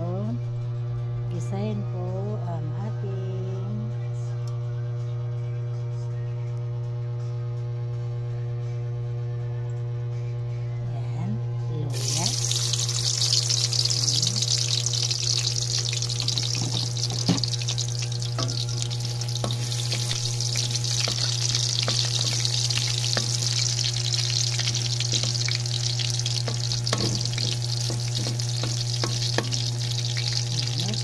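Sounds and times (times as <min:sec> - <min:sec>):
low steady hum: 0:00.0 - 0:31.0
ginger sizzling in hot oil: 0:11.9 - 0:31.0
wooden spatula knocking pan: 0:26.5 - 0:29.8.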